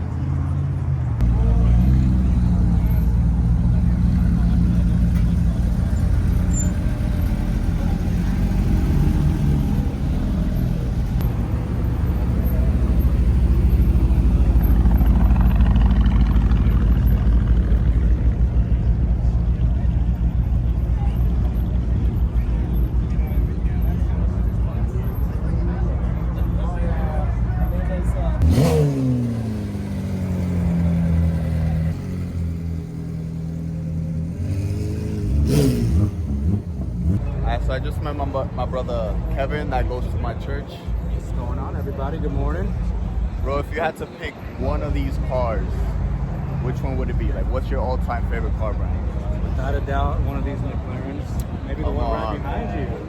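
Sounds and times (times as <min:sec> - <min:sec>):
car engine revving: 0:28.1 - 0:39.3.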